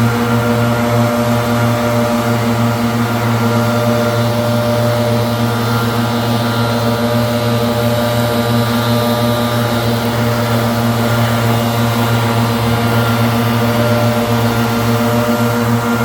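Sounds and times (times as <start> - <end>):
leaf blower running: 0.0 - 16.0.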